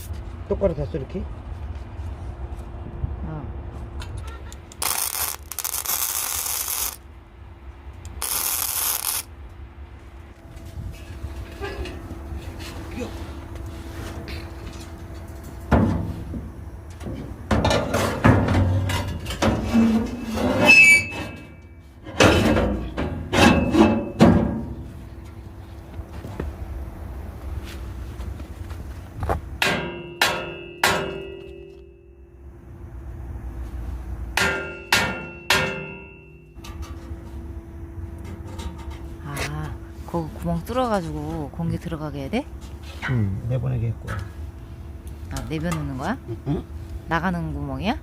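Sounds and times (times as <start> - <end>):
high squeak: 20.1 - 21.8.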